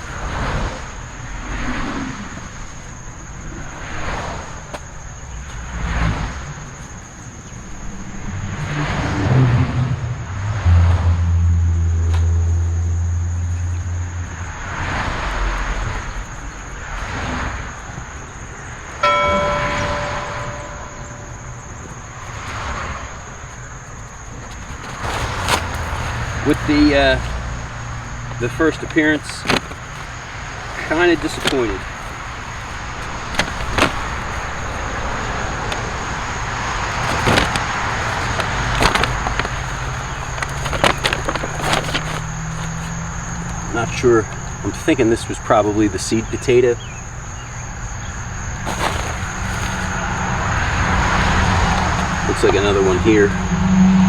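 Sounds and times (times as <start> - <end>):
digging soil by hand: 24.3 - 44.4, 48.1 - 53.0.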